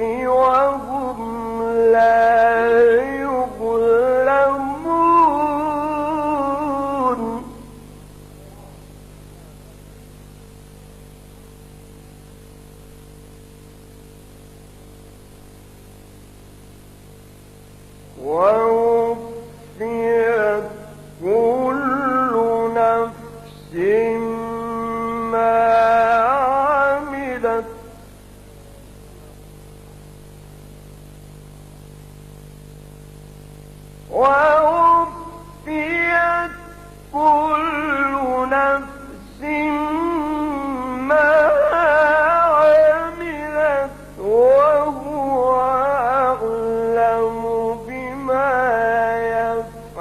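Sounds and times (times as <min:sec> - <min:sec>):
person reciting melodically: 0:00.0 - 0:07.8, 0:18.2 - 0:28.1, 0:34.1 - 0:50.0
constant hiss: 0:00.0 - 0:50.0
electrical hum: 0:00.0 - 0:50.0.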